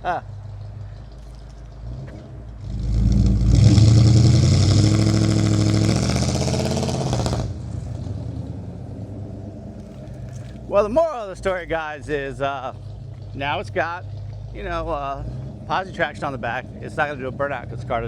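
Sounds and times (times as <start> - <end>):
car engine revving hard: 1.9 - 10.0.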